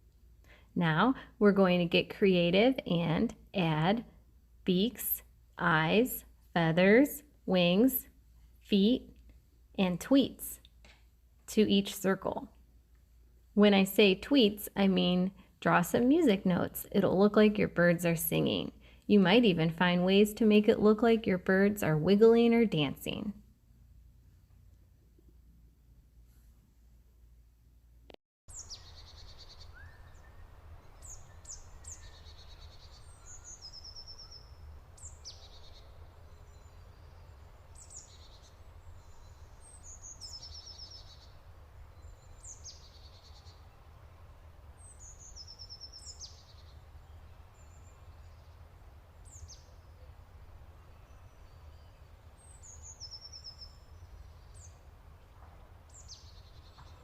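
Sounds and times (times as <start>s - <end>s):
birds chirping and trilling: 28.5s - 57.0s.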